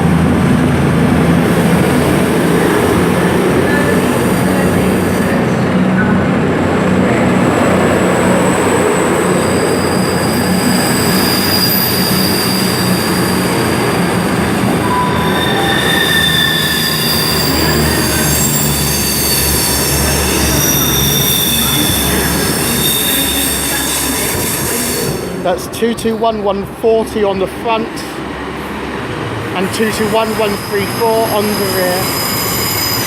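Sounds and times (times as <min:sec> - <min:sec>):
high-pitched wheel squeal: 0:09.2 - 0:25.4, 0:30.0 - 0:33.0.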